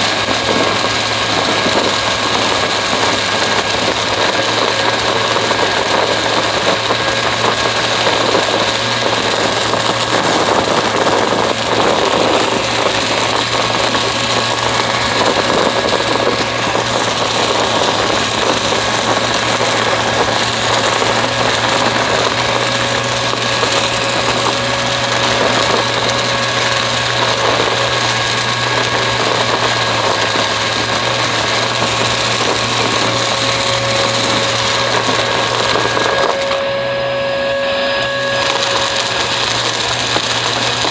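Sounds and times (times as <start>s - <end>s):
small crackles: 0.0s - 36.8s, 37.8s - 40.9s
vacuum cleaner running: 0.0s - 40.9s.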